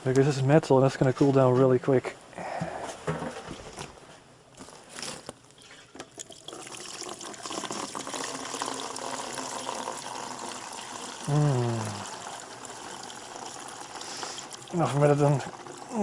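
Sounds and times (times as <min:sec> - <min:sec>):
liquid trickling into container: 0:04.6 - 0:16.0.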